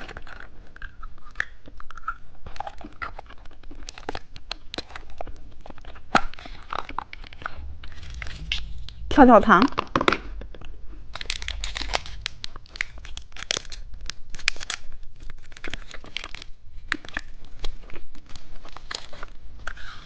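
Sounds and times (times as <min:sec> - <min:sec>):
plastic candy wrapper crinkling: 0:11.2 - 0:19.3.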